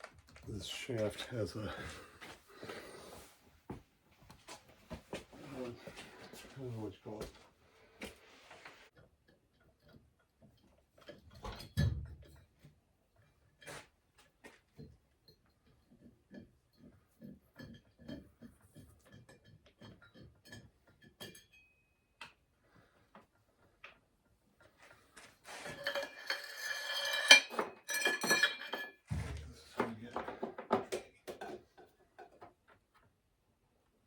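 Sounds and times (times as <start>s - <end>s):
metal clinking clatter: 25.5s - 29.1s.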